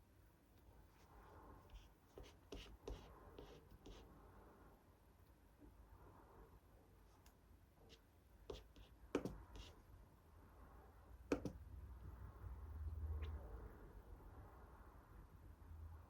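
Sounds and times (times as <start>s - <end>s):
clicks and taps on a desk: 8.5s - 9.6s, 11.3s - 11.6s.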